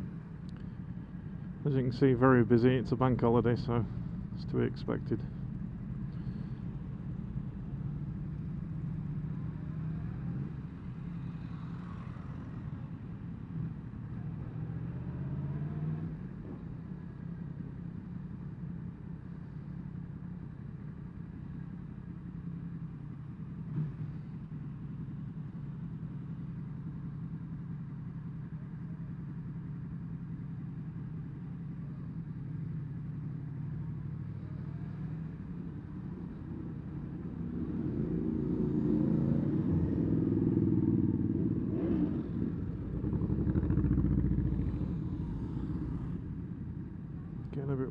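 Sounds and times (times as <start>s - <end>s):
motorcycle engine at low revs: 12.6s - 47.9s.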